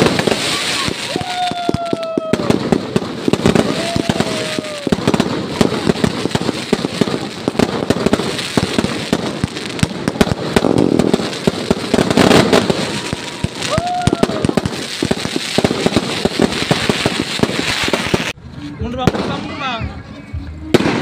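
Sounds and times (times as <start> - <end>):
firework whistle: 0.0 - 5.8, 11.9 - 18.3
fireworks crackling and popping: 0.0 - 21.0.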